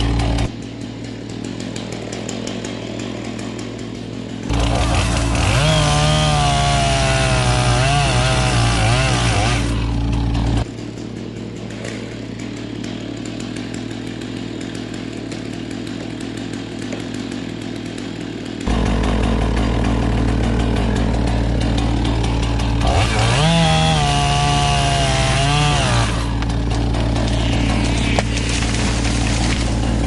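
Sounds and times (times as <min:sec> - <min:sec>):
chainsaw revving: 0:00.0 - 0:30.0
machine engine hum: 0:09.3 - 0:30.0.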